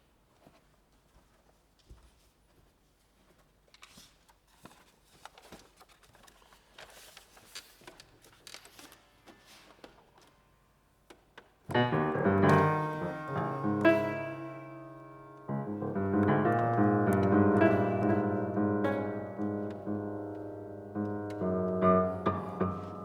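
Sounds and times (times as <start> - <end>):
faint clicks and rustles: 0.3 - 10.4
piano chords: 11.7 - 23.0.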